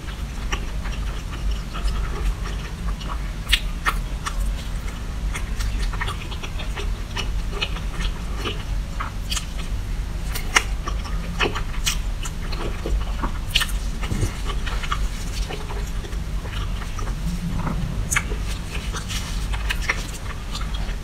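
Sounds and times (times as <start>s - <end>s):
chewing soft cake: 0.0s - 21.0s.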